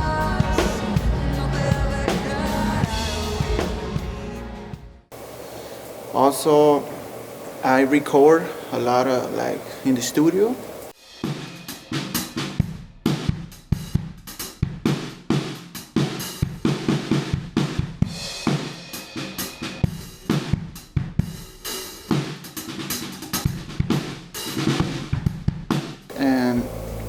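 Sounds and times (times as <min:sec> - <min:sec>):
drum kit playing: 0:00.0 - 0:04.9, 0:11.0 - 0:27.0.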